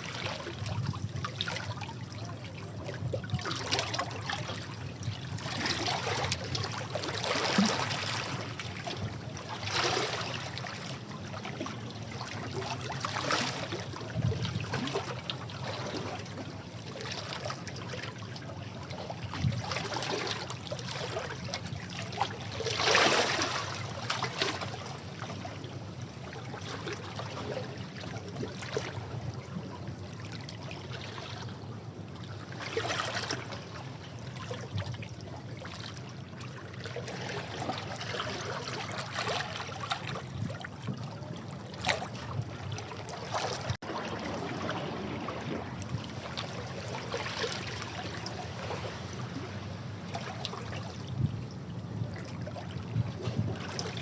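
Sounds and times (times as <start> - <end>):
sea waves washing over rocks: 41.8 - 50.4.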